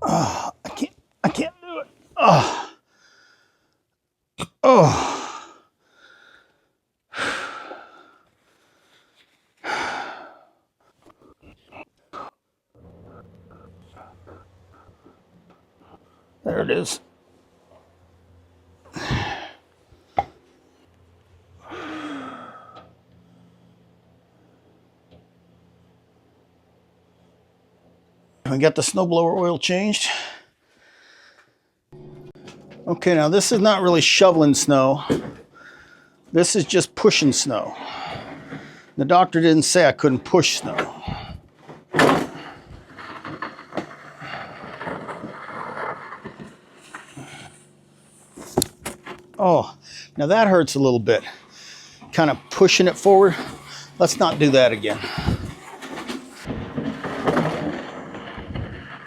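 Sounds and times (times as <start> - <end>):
man groaning: 0.0 - 2.8, 4.4 - 5.6, 18.9 - 19.6
man sighing: 4.6 - 5.6, 18.9 - 19.6, 21.6 - 22.9.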